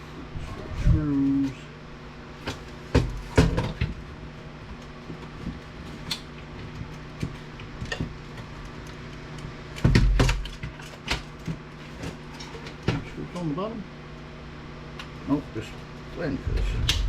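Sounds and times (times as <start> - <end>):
knocks and clatters of metal and plastic: 2.5 - 4.0, 9.8 - 13.1.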